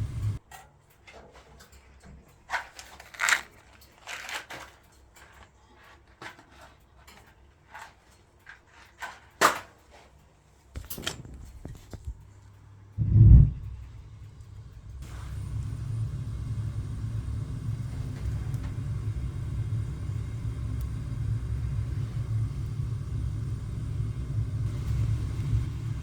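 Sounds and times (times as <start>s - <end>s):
faint low hum: 0.0s - 0.4s, 10.6s - 26.0s
metal parts knocking and clattering: 0.6s - 9.8s, 10.8s - 12.2s.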